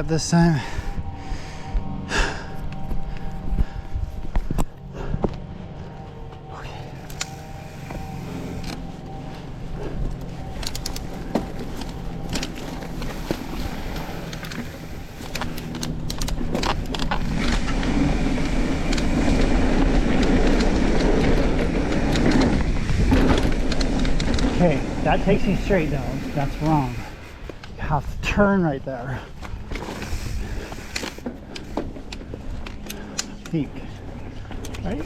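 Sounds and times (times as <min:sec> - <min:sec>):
wind noise on microphone: 0:00.0 - 0:05.3, 0:13.4 - 0:28.6, 0:29.5 - 0:31.0
bike rattling over bumps: 0:00.0 - 0:35.0
bike tyres rumbling on dirt: 0:00.0 - 0:35.0.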